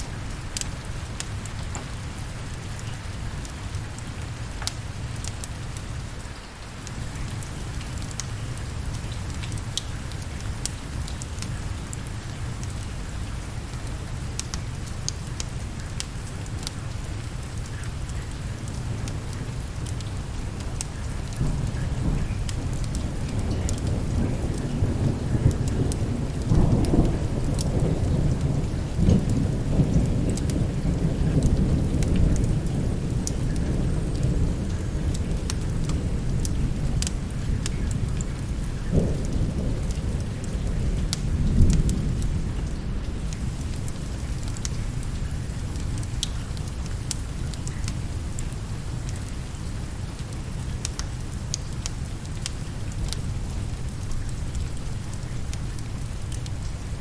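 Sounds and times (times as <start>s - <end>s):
steady rain: 0.0s - 57.0s
thunder rumbling: 21.4s - 47.5s.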